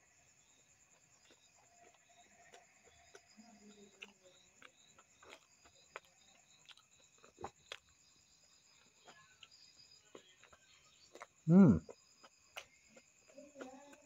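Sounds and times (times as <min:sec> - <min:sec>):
person chewing: 0:00.6 - 0:14.0
mouth smacks: 0:01.2 - 0:07.9.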